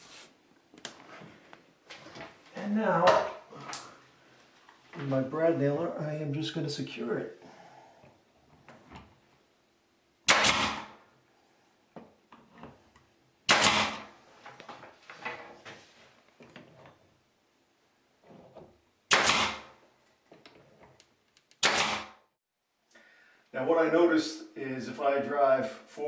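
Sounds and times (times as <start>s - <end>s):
nail gun firing: 10.3s - 11.0s, 13.5s - 14.1s, 19.1s - 19.8s, 21.6s - 22.2s.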